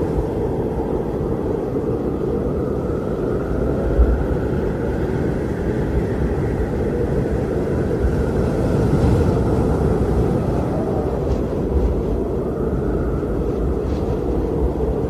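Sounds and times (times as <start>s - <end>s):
strong wind blowing: 0.0s - 15.0s.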